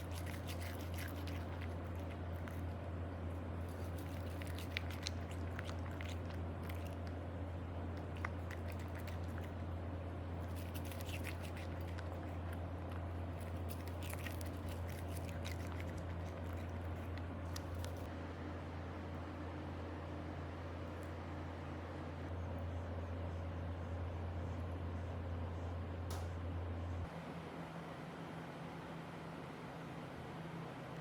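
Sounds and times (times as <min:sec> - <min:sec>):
cat chewing crunchily: 0:00.0 - 0:18.1
steady low hum: 0:00.0 - 0:31.0.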